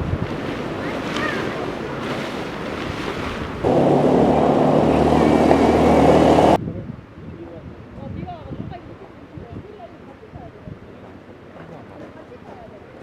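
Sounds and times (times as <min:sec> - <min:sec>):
low engine hum: 0:02.4 - 0:06.6
vehicle rushing rumble: 0:03.6 - 0:06.6.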